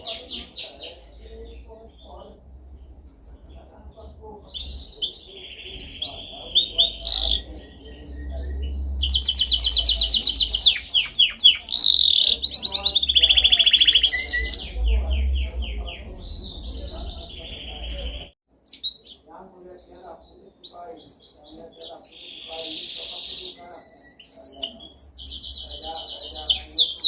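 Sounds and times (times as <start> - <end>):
faint low hum: 0.0 - 18.3
canary singing trills: 0.0 - 27.0.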